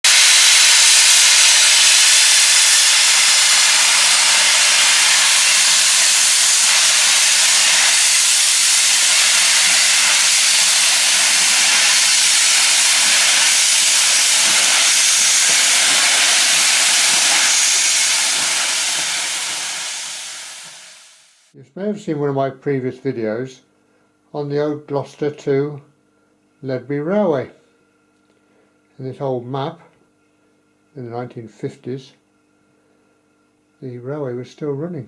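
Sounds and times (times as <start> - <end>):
loud steady hiss: 0.0 - 21.6.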